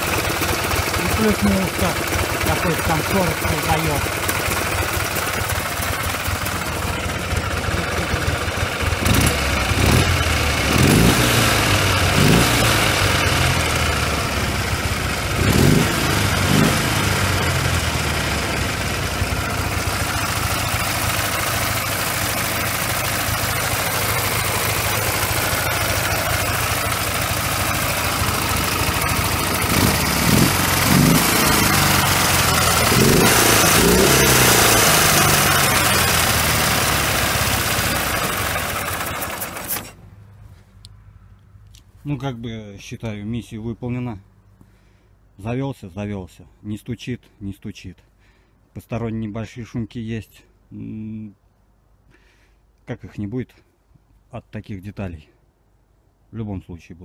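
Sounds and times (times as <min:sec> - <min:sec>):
motorcycle engine idling: 0:00.0 - 0:40.0
engine whirr and rustle: 0:05.0 - 0:42.1.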